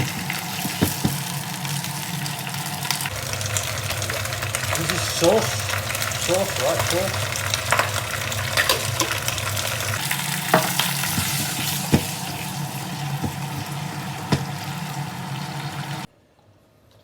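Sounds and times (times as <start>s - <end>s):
vegetables sizzling in a pan: 0.0s - 16.1s
utensil clacking against pan: 6.1s - 14.8s.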